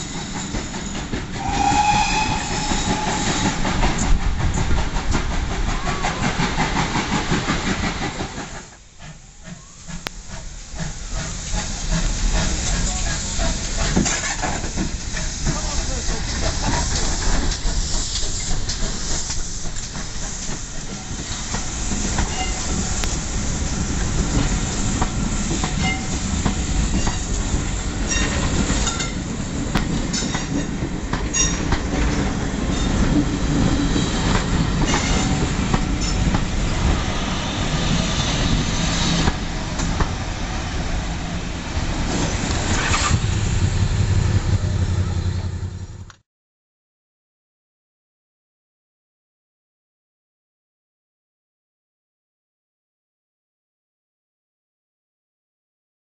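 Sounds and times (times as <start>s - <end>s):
train wheels clacking over rail joints: 0.0s - 37.0s
wheels squealing: 0.8s - 4.1s, 42.1s - 46.1s.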